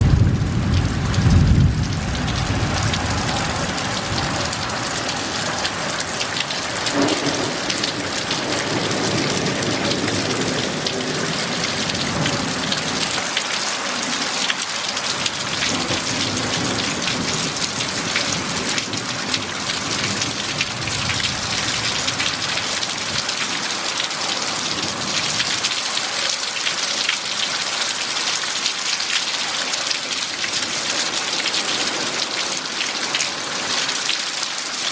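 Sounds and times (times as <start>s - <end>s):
thunder rumbling: 0.0s - 13.1s
heavy rain falling: 0.0s - 34.9s.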